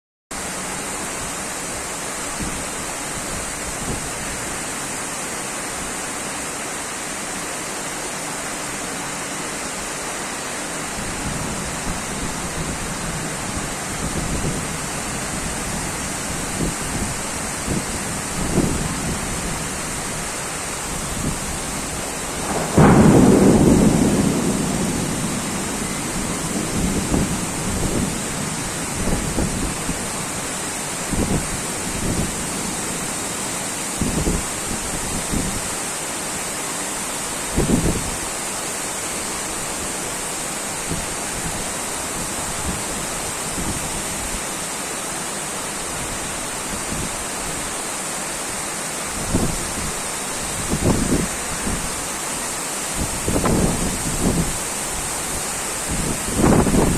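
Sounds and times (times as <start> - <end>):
heavy rain hissing: 0.4 - 56.9
thunder rumbling: 21.1 - 30.5, 55.9 - 56.9
loud thunderclap: 22.2 - 30.0, 55.9 - 56.9.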